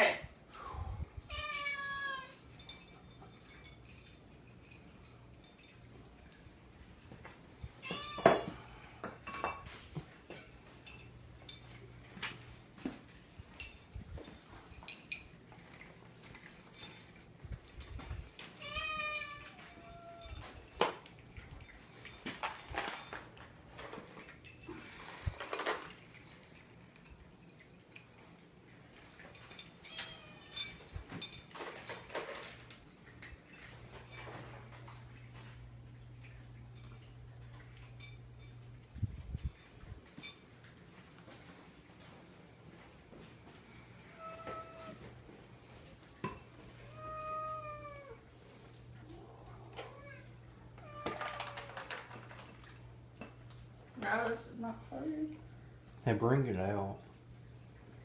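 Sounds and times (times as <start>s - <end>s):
cat meowing: 1.3s - 2.3s, 7.8s - 8.7s, 18.6s - 20.4s, 44.2s - 45.0s, 46.9s - 48.2s
light clinks and taps: 1.9s - 54.2s, 55.3s - 58.0s.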